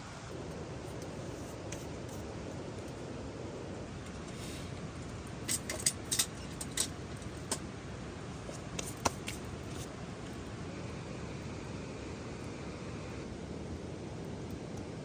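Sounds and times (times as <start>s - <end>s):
rain hissing: 4.2s - 4.8s.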